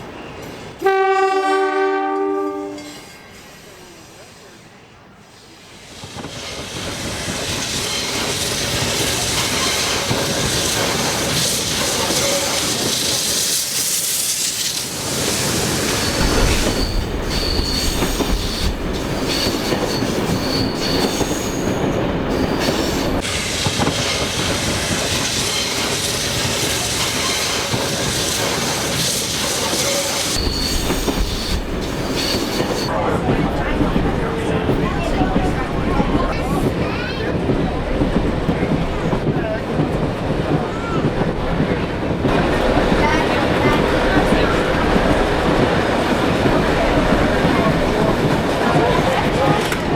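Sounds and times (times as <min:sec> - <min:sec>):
train wheels rumbling on rails: 0:05.7 - 0:49.9
high wheel squeal: 0:15.4 - 0:23.4, 0:29.6 - 0:32.9.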